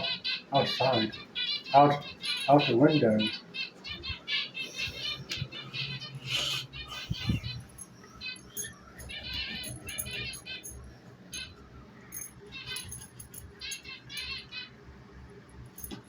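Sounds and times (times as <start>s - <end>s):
budgerigars chirping and chattering: 0.0s - 11.6s, 12.5s - 14.8s.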